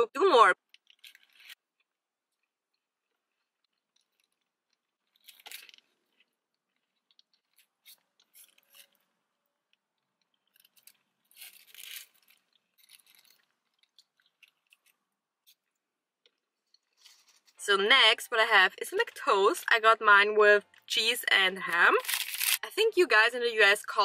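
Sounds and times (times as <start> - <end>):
chewing and biting: 0.6 - 17.6
paper wrapper crinkling: 3.4 - 9.2, 9.8 - 15.7, 16.4 - 17.6, 21.9 - 22.6.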